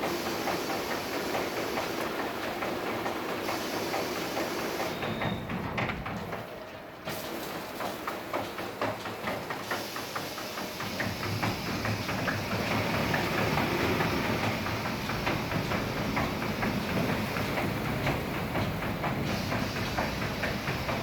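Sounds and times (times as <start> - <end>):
rapid irregular clicks and slaps: 7.3 - 21.0
car wash machine hissing: 9.6 - 21.0.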